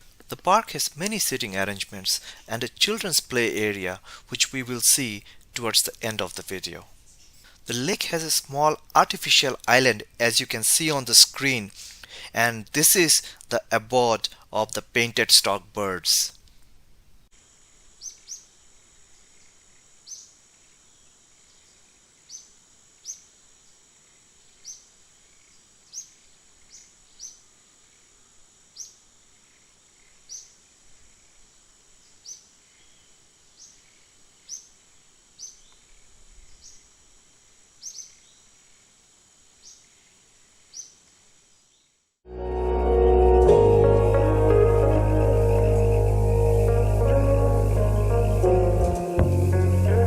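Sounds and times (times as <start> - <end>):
high-pitched insect drone: 43.4 - 50.0.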